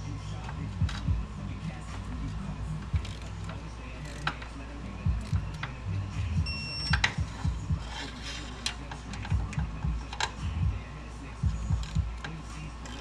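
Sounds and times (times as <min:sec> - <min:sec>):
low steady hum: 0:00.0 - 0:13.0
short high beep: 0:06.4 - 0:07.0.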